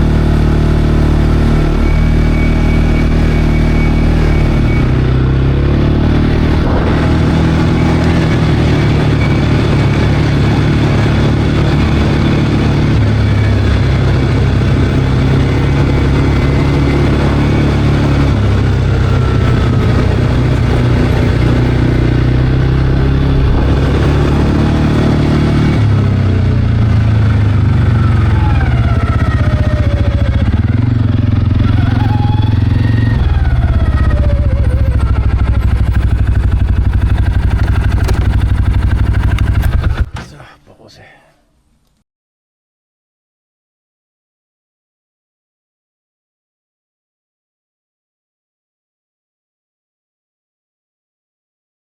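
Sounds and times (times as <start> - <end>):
atv engine running: 0.0 - 40.2.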